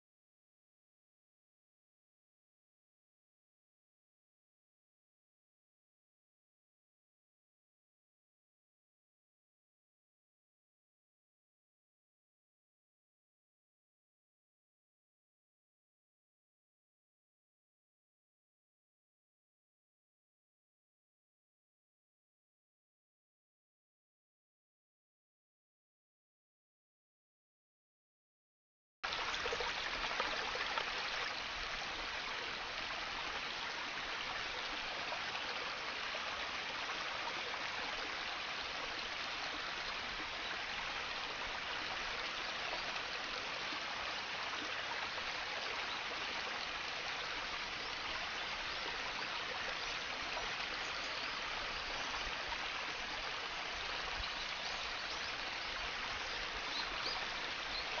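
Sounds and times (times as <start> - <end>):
water trickling: 29.0 - 58.0.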